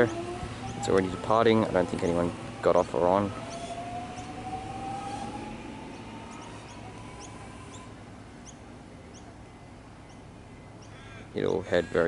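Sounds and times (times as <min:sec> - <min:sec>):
electric train motor whine: 0:00.0 - 0:08.3.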